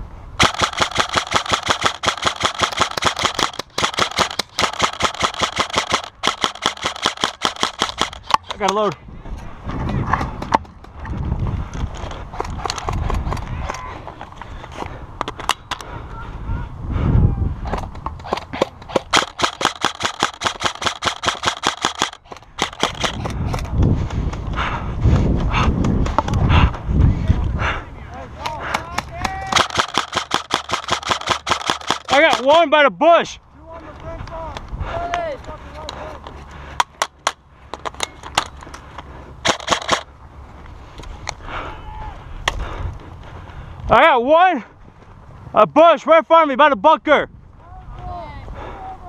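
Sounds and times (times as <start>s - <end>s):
airsoft gun firing full auto: 0.4s - 8.4s, 19.1s - 23.2s, 29.5s - 32.5s, 39.4s - 40.0s.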